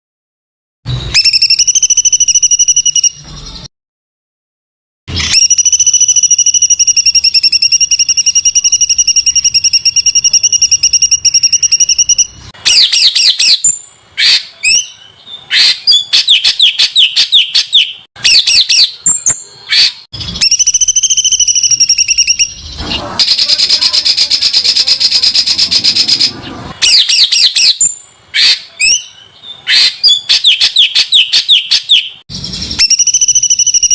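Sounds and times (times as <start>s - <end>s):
songbird singing rapid bursts: 5.3s - 33.9s.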